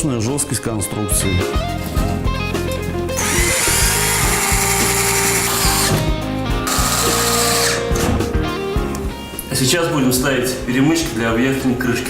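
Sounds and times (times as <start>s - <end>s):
power screwdriver driving screws: 3.2s - 6.0s, 6.6s - 8.0s.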